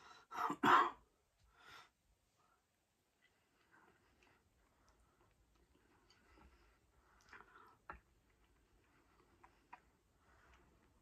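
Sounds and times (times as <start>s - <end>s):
soft mouth clicks chewing: 7.1s - 10.7s.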